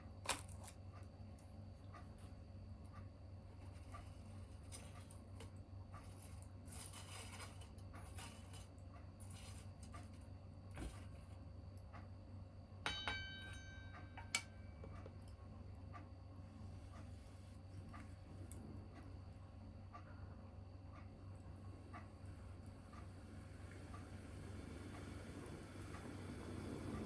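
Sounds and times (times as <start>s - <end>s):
steady low hum: 0.0s - 27.0s
ringing clink: 12.9s - 14.8s
small wood fire crackling: 21.2s - 27.0s.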